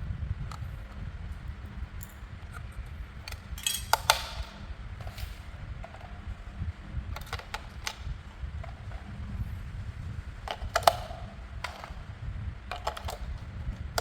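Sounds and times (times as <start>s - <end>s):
plastic toy parts clicking: 3.3s - 6.1s, 7.2s - 9.0s, 10.4s - 12.0s, 12.7s - 14.0s.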